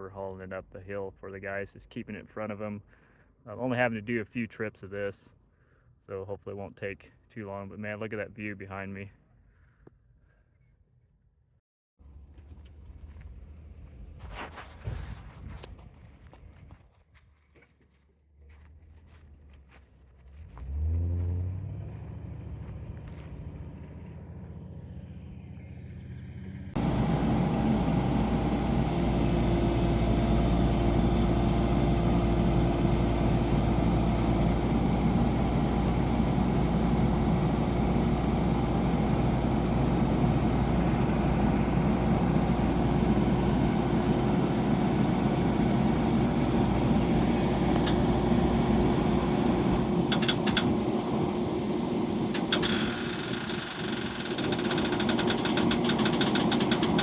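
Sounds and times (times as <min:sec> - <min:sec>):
vehicle engine running: 0:12.0 - 0:14.4, 0:18.5 - 0:57.0.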